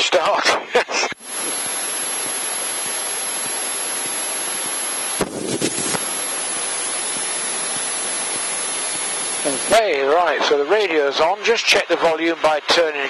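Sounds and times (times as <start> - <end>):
headset intercom hiss: 0.9 - 10.2.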